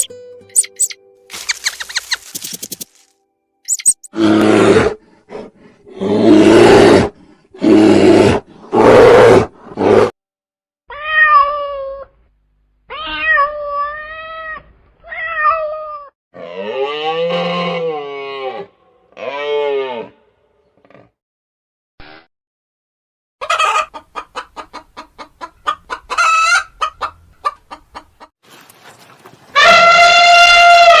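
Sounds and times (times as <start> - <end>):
animal roaring: 4.1 - 10.1, 16.4 - 21.1
drawn-out meow-like cries: 10.9 - 12.1, 12.9 - 16.1, 29.6 - 31.0.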